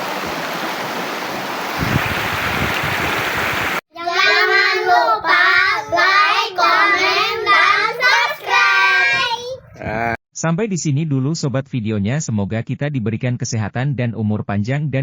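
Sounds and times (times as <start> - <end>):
water rushing: 0.0 - 3.8
high voice singing: 7.8 - 10.2.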